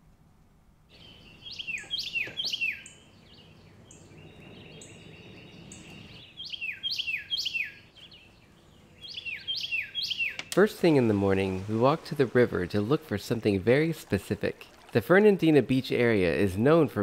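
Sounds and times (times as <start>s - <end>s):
birds whistling downward notes: 0.9s - 11.6s.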